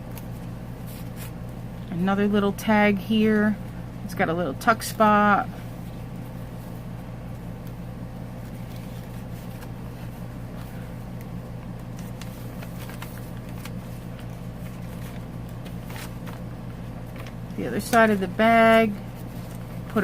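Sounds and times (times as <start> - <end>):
low background hum: 0.0 - 20.0
paper being handled: 0.2 - 1.5, 7.6 - 20.0.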